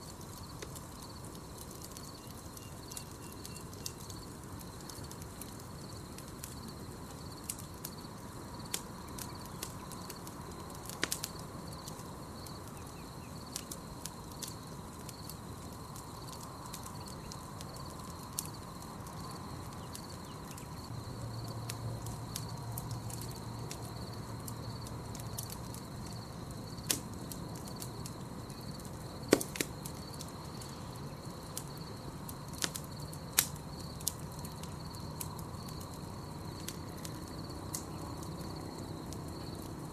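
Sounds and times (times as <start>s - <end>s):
campfire crackling and popping: 0.0s - 39.9s
night insects chirring: 0.0s - 39.9s.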